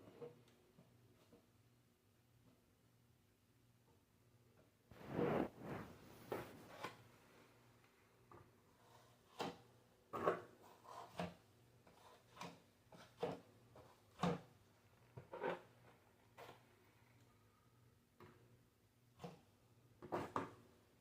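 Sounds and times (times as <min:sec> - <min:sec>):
drywall knife scraping: 0:08.7 - 0:14.4.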